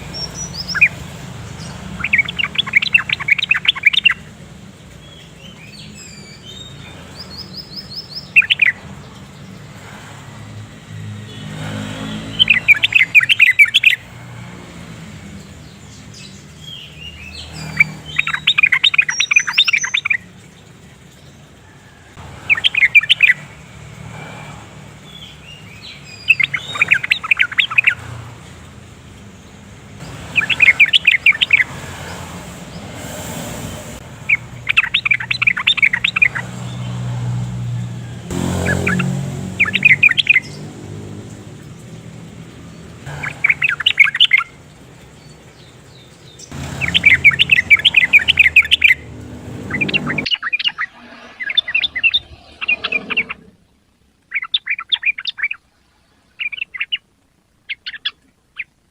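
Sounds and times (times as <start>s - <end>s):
bird chattering song: 0.0s - 4.4s, 5.0s - 9.4s, 12.3s - 14.1s, 15.6s - 20.3s, 22.4s - 23.6s, 25.0s - 28.2s, 30.0s - 32.2s, 34.2s - 37.0s, 38.4s - 40.7s, 43.0s - 53.5s, 54.3s - 55.6s.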